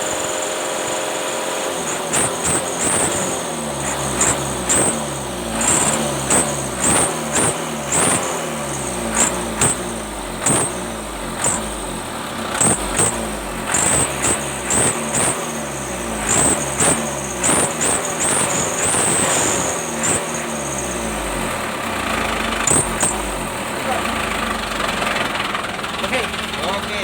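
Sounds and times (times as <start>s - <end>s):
diesel truck engine revving: 0.0s - 27.0s.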